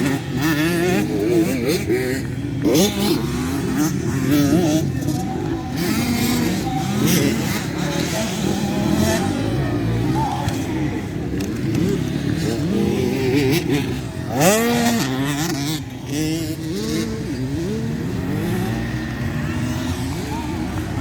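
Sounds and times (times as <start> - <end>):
motorbike engines revving: 0.0 - 21.0.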